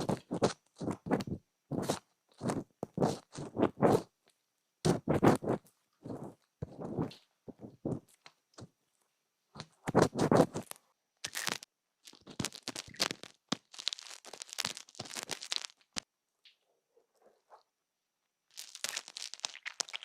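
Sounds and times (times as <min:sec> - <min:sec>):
ear cleaning scratching and rubbing: 0:00.0 - 0:04.1, 0:04.9 - 0:08.2, 0:09.6 - 0:16.0.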